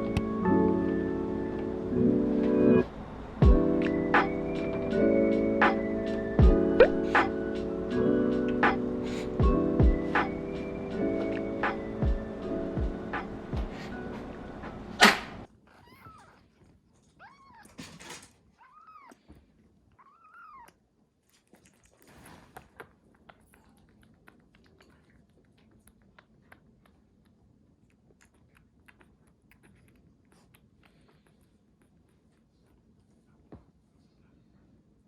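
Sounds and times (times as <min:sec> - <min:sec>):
background music: 0:00.0 - 0:15.4.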